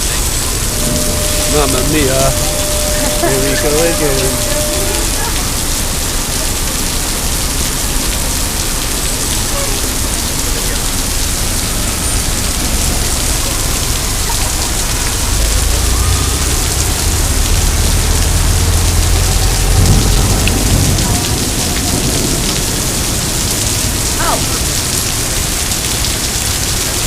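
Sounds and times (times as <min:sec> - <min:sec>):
low rumble: 0:00.0 - 0:09.0
heavy rain pouring: 0:00.0 - 0:27.0.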